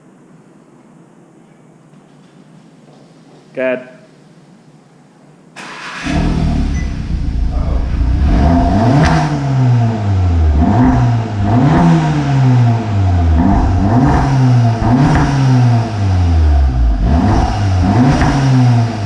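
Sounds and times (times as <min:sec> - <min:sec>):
car engine revving: 0:05.6 - 0:19.0
car engine starting: 0:05.6 - 0:19.0.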